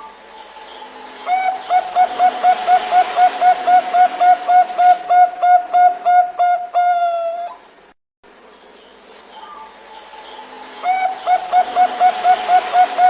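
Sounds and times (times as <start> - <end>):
dove cooing: 1.3 - 7.6, 10.8 - 13.0.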